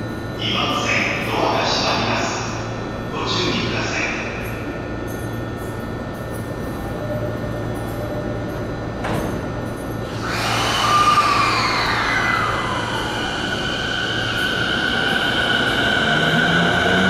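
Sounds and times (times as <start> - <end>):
electric train moving: 6.6 - 17.0
whining tones falling in pitch: 10.0 - 17.0.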